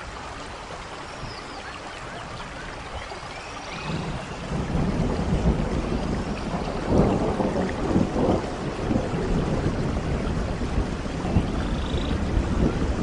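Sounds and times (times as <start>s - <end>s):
steady rain: 0.0s - 13.0s
thunder rolling: 3.8s - 13.0s.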